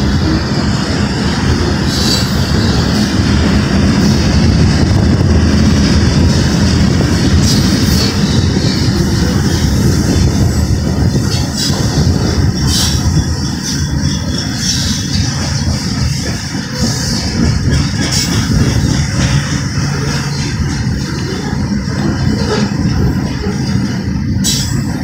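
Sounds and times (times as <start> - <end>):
train wheels rumbling on rails: 0.0 - 25.0
high-pitched wheel squeals: 11.2 - 16.0.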